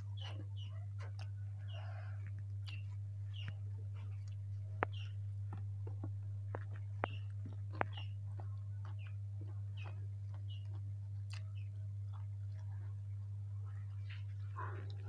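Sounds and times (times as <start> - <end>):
chewing with mouth smacks: 0.0 - 13.0
low hum: 0.0 - 15.0.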